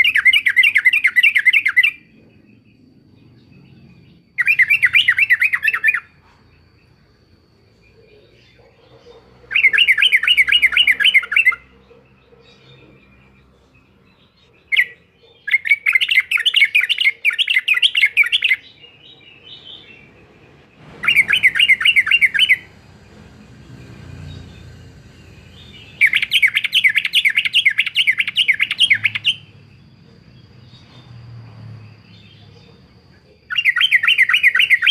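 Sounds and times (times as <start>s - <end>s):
bulbul singing: 0.0s - 34.9s
fast chattering bird notes: 20.9s - 29.5s.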